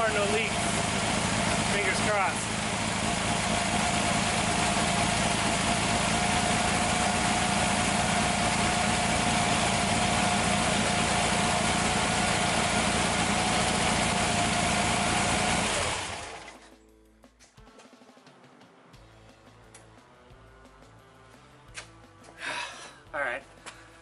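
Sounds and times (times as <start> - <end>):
air-cooled engine running: 0.0 - 16.6.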